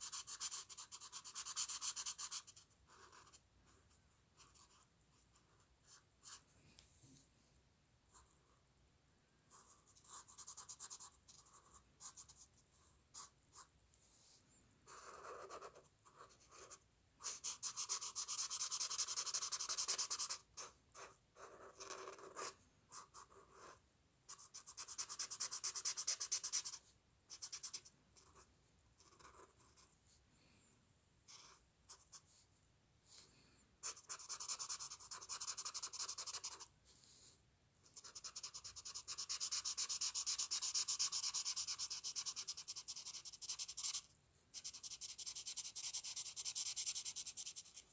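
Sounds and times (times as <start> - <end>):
drawing tool scratching on paper: 0.0 - 3.4, 14.9 - 29.9, 33.8 - 36.7, 38.0 - 47.9.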